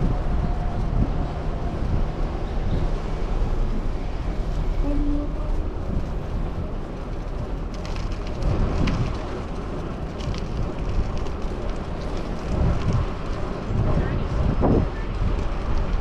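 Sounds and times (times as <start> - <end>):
road and traffic noise: 0.0 - 16.0
wind rumbling on microphone: 0.0 - 16.0.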